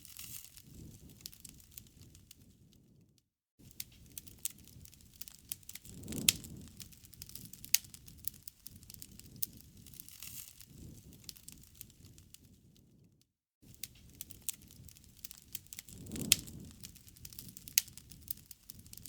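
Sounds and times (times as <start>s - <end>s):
campfire crackling: 0.0s - 2.9s, 3.6s - 12.6s, 13.7s - 19.0s
low rumble of flame: 0.0s - 19.0s
sharp pop of fire: 5.8s - 9.5s, 15.8s - 18.1s.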